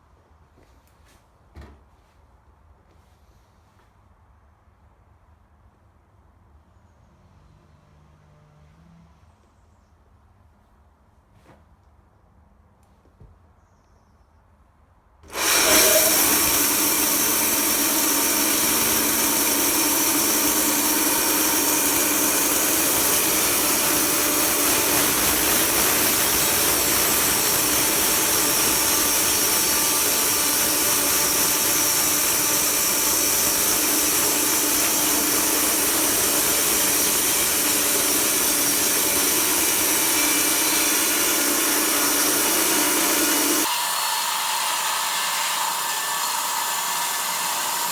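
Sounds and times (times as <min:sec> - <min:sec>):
sawmill running: 0:15.2 - 0:47.9.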